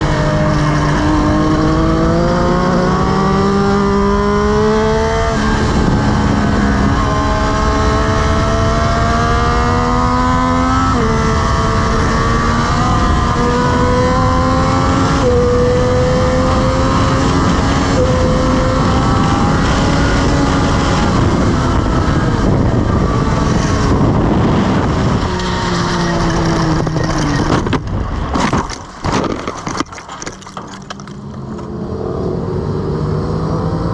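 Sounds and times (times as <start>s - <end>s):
heavy wind noise: 0.0s - 32.8s
motorcycle engine at full throttle: 0.0s - 33.9s
motorcycle crash knocks and scrapes: 25.0s - 31.7s.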